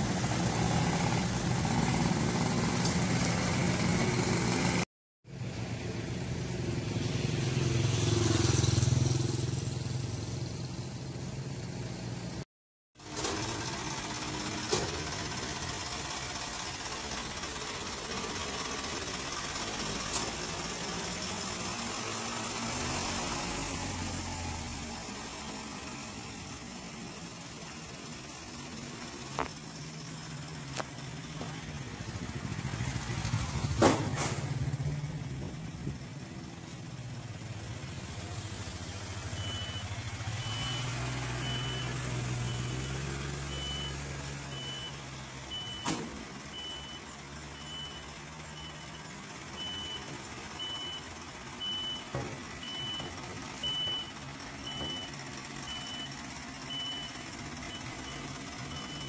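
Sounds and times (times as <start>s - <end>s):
engine running: 0.0s - 12.4s, 13.0s - 59.0s
reversing alarm beeping: 39.3s - 59.0s.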